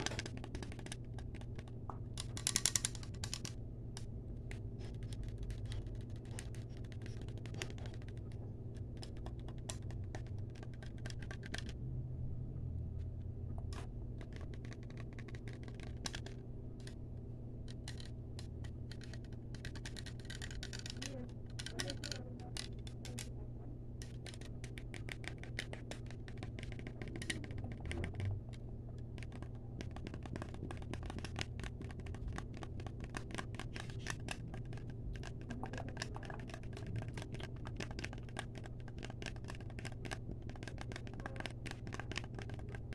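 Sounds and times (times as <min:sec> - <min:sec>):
rapid tapping clicks: 0:00.0 - 0:04.1, 0:14.2 - 0:17.0, 0:17.7 - 0:23.3, 0:24.0 - 0:42.9.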